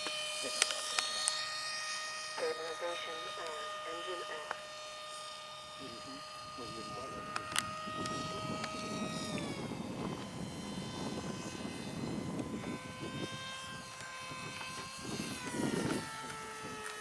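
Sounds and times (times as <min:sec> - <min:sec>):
model plane motor whining: 0:00.0 - 0:17.0
rushing wind: 0:06.0 - 0:16.9.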